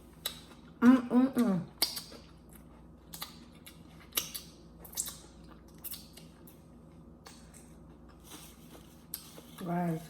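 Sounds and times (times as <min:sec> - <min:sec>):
chewing food: 0:01.6 - 0:09.8.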